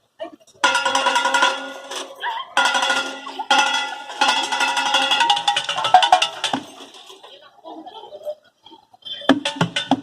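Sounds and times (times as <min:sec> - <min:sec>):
strikes on metal objects: 0:00.6 - 0:07.2, 0:09.3 - 0:10.0.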